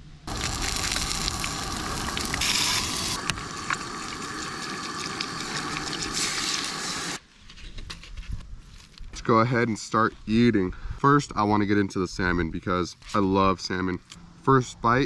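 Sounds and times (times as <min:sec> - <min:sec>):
food sizzling in a pan: 0:00.3 - 0:07.2.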